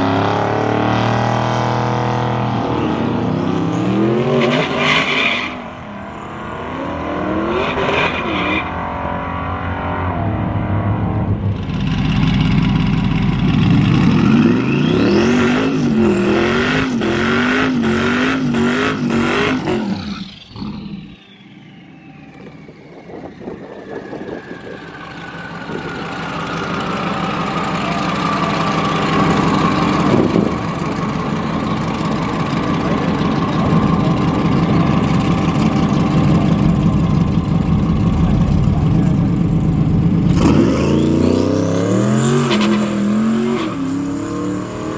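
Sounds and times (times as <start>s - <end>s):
car engine at full throttle: 0.0s - 44.9s
falling whine: 0.0s - 44.9s.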